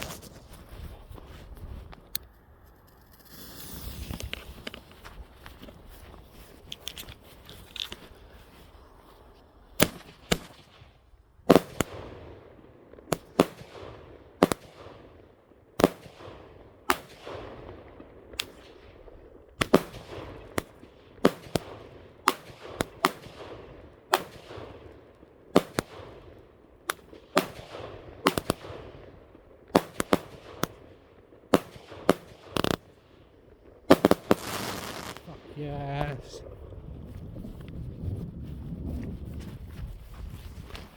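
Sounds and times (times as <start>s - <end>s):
fireworks bangs: 9.8s - 12.3s, 19.6s - 24.9s, 25.6s - 33.2s, 33.9s - 36.4s.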